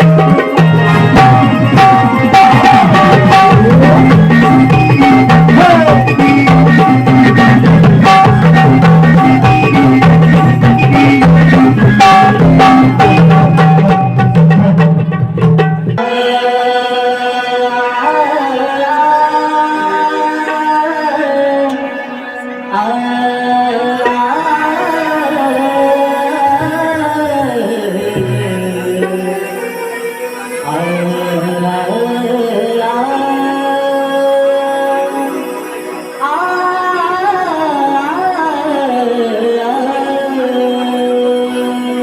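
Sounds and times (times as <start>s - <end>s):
sliding sung melody: 0.0s - 15.1s, 16.0s - 42.0s
drums beating fast rhythm: 0.0s - 17.1s, 24.0s - 33.1s
held melody notes: 0.0s - 42.0s.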